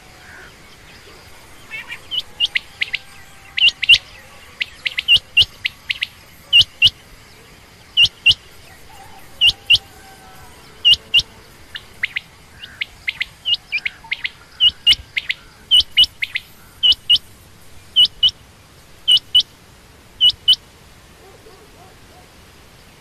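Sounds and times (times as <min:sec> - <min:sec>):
quail calling: 0:00.0 - 0:07.0, 0:07.9 - 0:17.3, 0:17.9 - 0:18.4, 0:19.1 - 0:19.5, 0:20.2 - 0:20.6.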